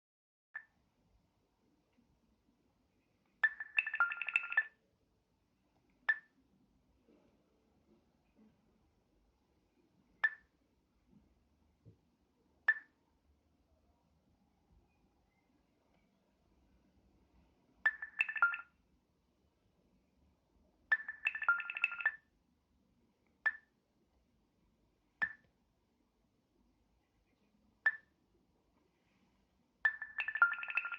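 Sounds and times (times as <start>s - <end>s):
phone notification tones: 3.4s - 4.7s, 17.9s - 18.7s, 20.9s - 22.2s, 29.9s - 30.9s
phone ping: 3.4s - 4.8s, 17.9s - 18.7s, 20.9s - 22.2s, 29.9s - 30.9s.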